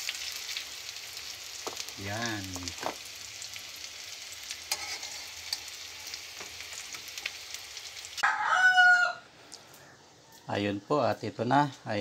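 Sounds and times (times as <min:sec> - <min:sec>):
patties sizzling in oil: 0:00.0 - 0:08.3.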